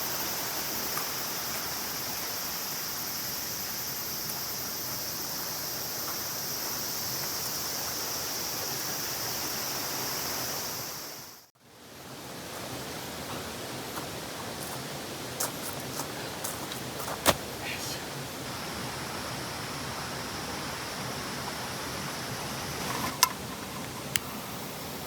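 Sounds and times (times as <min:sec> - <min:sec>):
shrill insect chorus: 0:00.0 - 0:11.5, 0:17.1 - 0:25.0
dull outdoor hiss: 0:00.0 - 0:25.0
flowing water rushing: 0:00.0 - 0:25.0.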